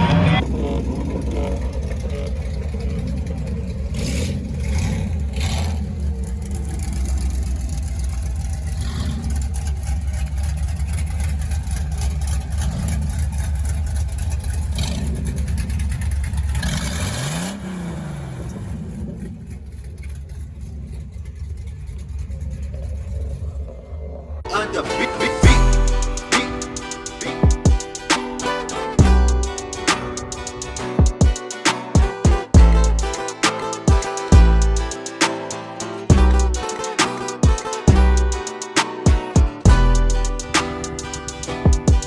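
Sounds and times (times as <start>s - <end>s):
vehicle engine running: 0.0s - 42.0s.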